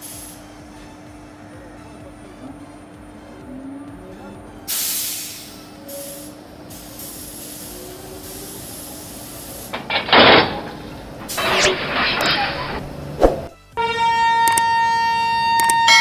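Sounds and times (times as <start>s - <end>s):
train air hissing: 0.0s - 0.7s, 4.7s - 11.8s.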